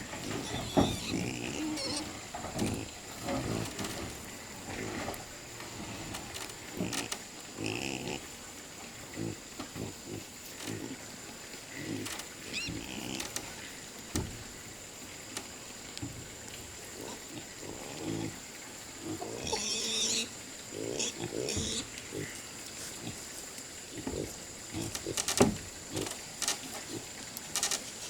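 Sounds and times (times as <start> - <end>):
animal grunting: 0.1 - 3.8, 11.7 - 13.4.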